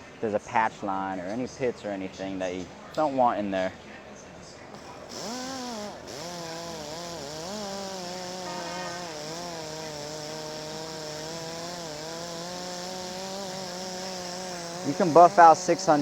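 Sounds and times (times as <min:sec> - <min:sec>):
angle grinder motor humming: 0:04.8 - 0:16.0.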